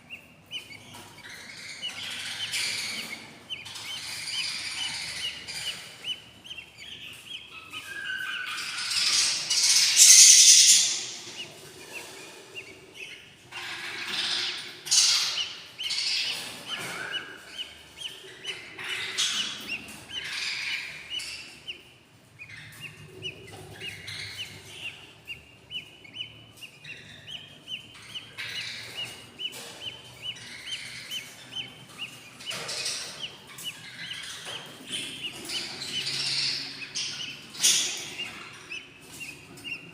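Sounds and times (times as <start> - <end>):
budgie chicks chirping: 0.0 - 39.9.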